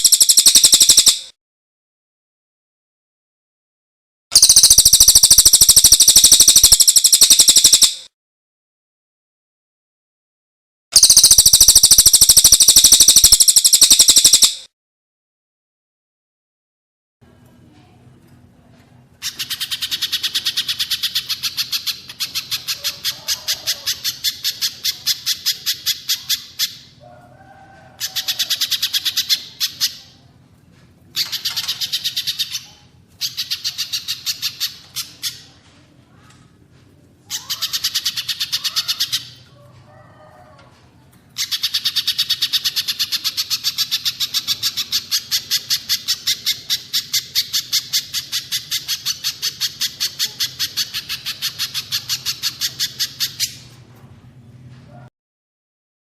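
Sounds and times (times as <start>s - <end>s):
small songbird singing: 0.0s - 1.3s, 4.4s - 8.0s, 11.0s - 14.6s.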